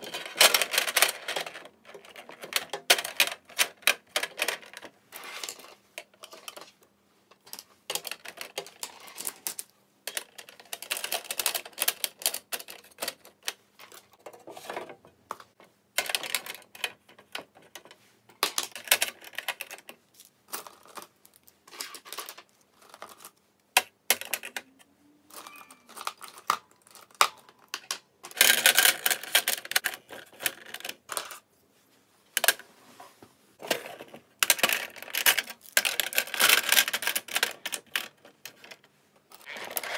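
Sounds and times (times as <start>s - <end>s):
small hard objects clattering: 25.4s - 31.4s.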